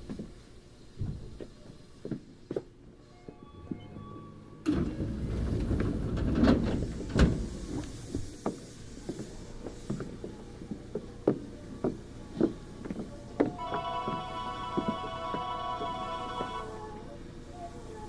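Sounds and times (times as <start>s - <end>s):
train doors sliding shut: 3.2s - 10.3s
clicks and knocks from train car: 4.7s - 13.9s.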